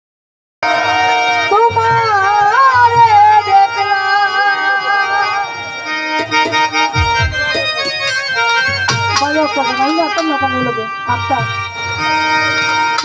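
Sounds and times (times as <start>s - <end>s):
electronic keyboard melody: 0.6s - 13.0s
bass and drum beat: 6.2s - 9.4s.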